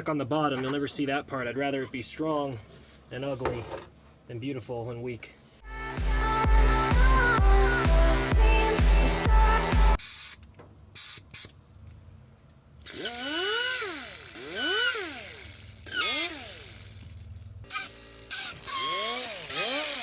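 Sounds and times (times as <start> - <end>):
background music: 5.6 - 10.0
pneumatic grinder whining: 12.8 - 20.0.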